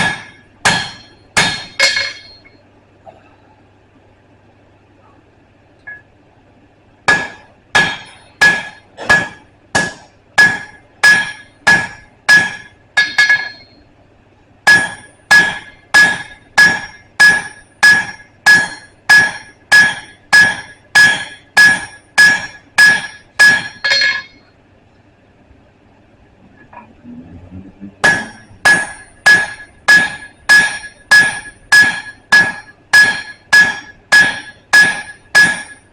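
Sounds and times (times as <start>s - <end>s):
hammer striking an anvil: 0.0s - 2.6s, 7.1s - 13.8s, 14.7s - 24.4s, 28.0s - 35.9s.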